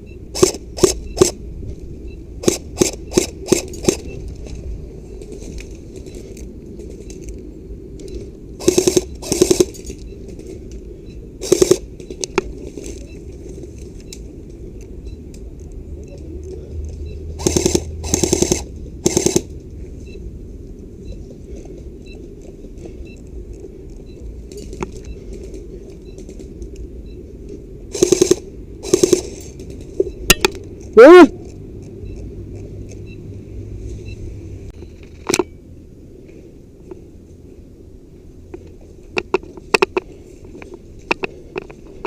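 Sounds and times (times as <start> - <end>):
airsoft gun rapid-fire bursts: 0.4 - 1.4, 2.4 - 4.0, 8.6 - 9.7, 11.4 - 11.8, 17.4 - 19.5, 27.9 - 29.4.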